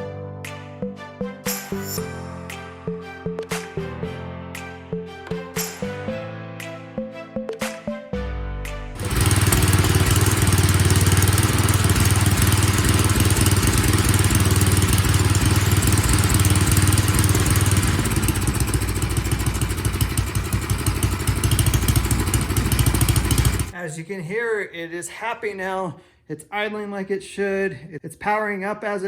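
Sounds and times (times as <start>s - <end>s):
small gas engine running: 9.0s - 23.8s.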